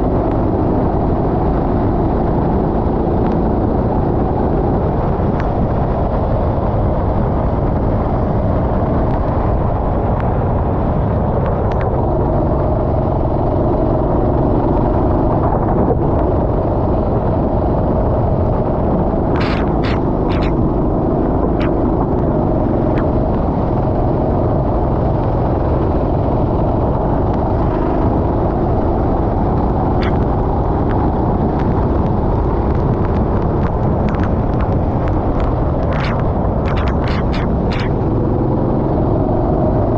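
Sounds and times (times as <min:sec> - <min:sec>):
wind buffeting microphone: 0:00.0 - 0:39.9
kart engine running: 0:19.0 - 0:31.3, 0:33.2 - 0:39.9
sharp clicks: 0:19.4 - 0:20.6, 0:30.0 - 0:31.0, 0:32.5 - 0:38.1.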